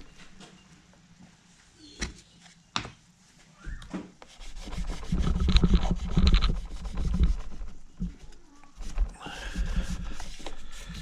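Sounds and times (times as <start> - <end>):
scratchy rubbing: 4.3 - 11.0.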